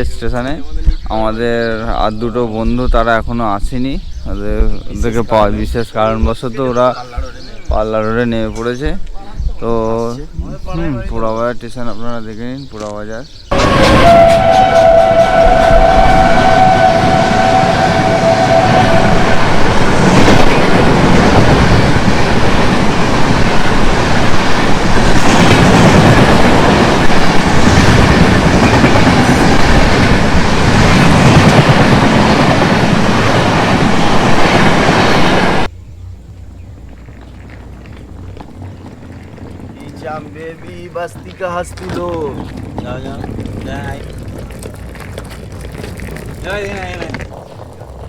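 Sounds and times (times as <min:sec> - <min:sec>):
two-tone train horn: 0:13.5 - 0:20.7
train wheels clattering over rails: 0:13.5 - 0:35.7, 0:37.0 - 0:48.0.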